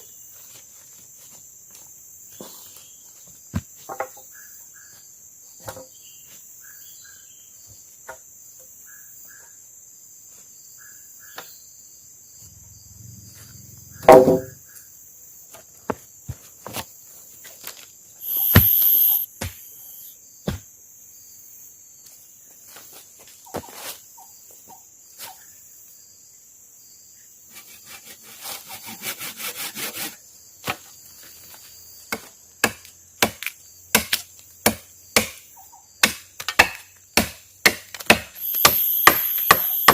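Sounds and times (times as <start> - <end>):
crickets and insects droning: 0.0 - 39.9
heavy thud: 14.0 - 14.6
sharp chopping strikes: 14.0 - 14.6, 18.2 - 19.7, 36.0 - 39.9.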